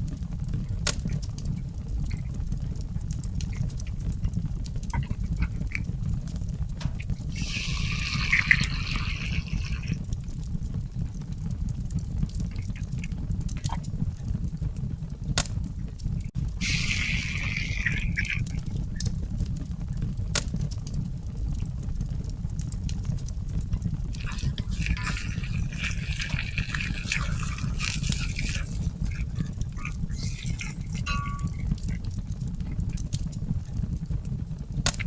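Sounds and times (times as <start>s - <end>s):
liquid pouring: 2.1s - 2.3s, 5.0s - 5.8s, 7.0s - 10.0s, 12.5s - 13.8s, 16.4s - 19.2s, 24.1s - 32.0s.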